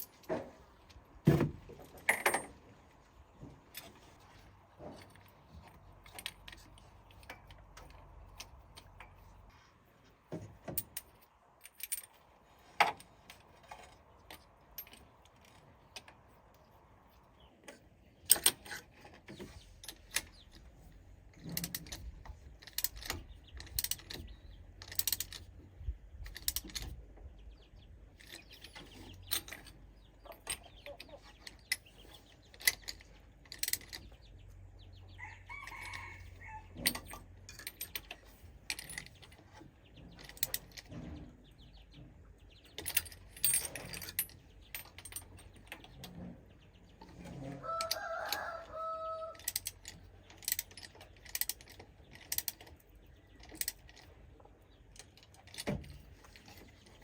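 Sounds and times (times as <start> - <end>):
metal tools clinking: 0.0 - 9.4, 21.3 - 25.6, 28.2 - 34.2, 35.6 - 41.2, 42.6 - 46.3, 49.3 - 54.1.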